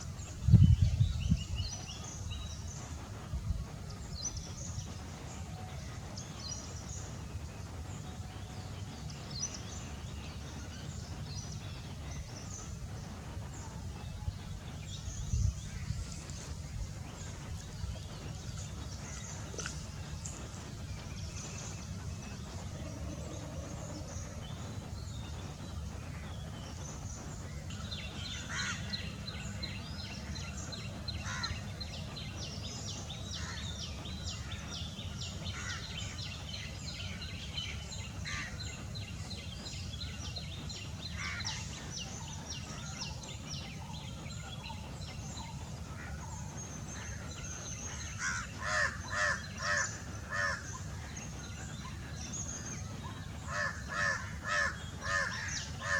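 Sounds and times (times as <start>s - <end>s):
wild bird calls and chirps: 0.0s - 55.9s
loud harsh bird calls: 27.9s - 29.5s, 31.2s - 31.7s, 44.1s - 55.9s.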